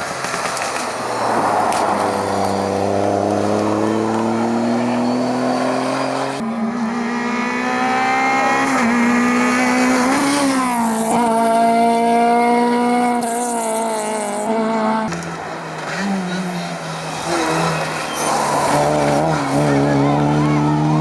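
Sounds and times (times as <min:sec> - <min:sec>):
rally car engine revving: 0:00.4 - 0:21.0
tyre squeal: 0:01.2 - 0:06.4, 0:15.9 - 0:21.0.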